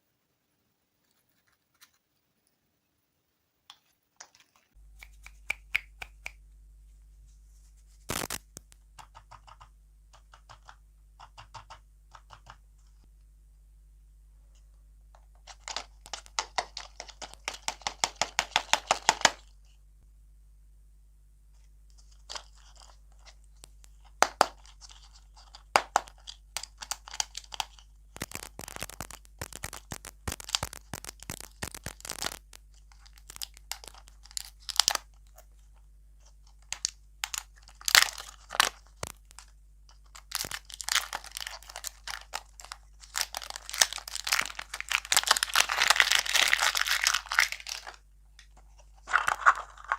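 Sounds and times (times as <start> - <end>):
crisp crunching and crackling: 8.1 - 8.8, 22.0 - 49.9.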